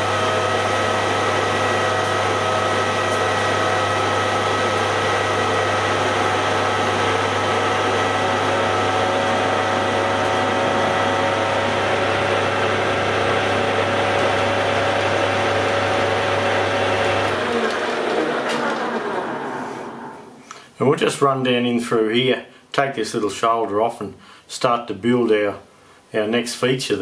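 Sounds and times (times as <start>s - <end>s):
electric motor humming: 0.0s - 20.4s.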